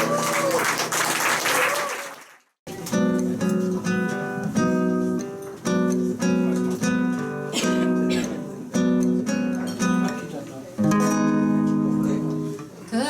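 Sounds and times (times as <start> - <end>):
acoustic guitar strumming: 2.7 - 12.7.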